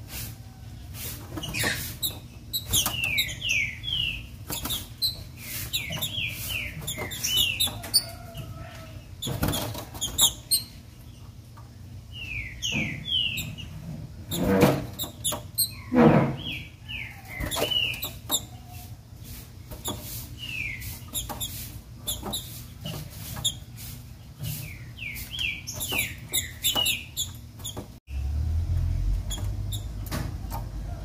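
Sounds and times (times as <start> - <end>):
rustles: 17.3 - 28.0.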